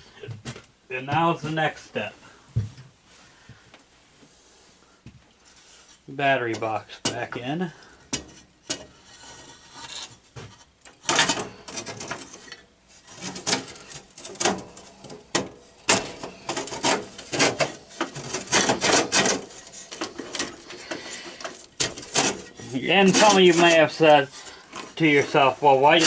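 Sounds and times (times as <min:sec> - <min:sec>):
parts knocking and scraping: 0:05.5 - 0:26.0.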